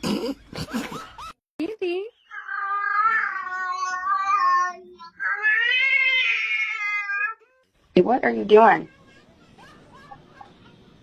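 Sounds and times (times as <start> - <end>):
cat meowing: 2.3 - 7.4.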